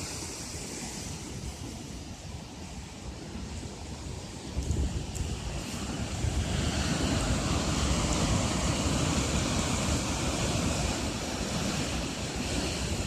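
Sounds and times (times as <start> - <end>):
surf pounding against a cliff: 0.0 - 13.0
wind buffeting the microphone: 0.0 - 13.0.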